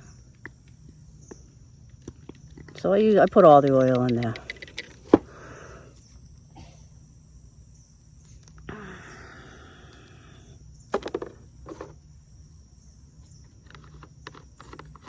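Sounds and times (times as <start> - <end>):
crickets chirring: 0.0 - 15.0
objects being handled clicking: 0.3 - 5.3, 13.3 - 15.0.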